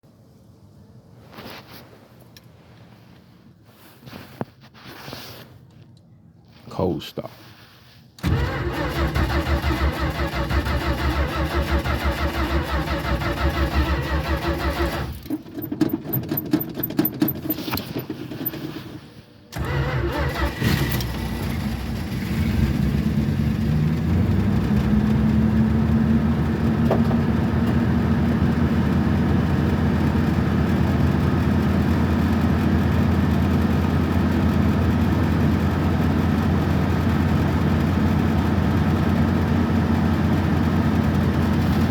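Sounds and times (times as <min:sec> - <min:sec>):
car starter cranking: 0:08.2 - 0:22.3
car engine idling: 0:19.5 - 0:41.9.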